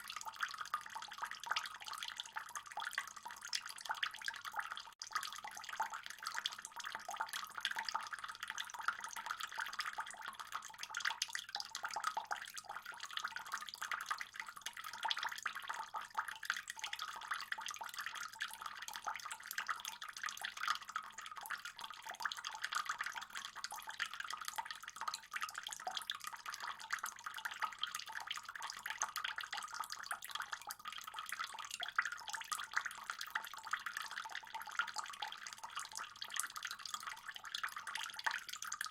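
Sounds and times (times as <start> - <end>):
water trickling into a pond: 0.0 - 38.9.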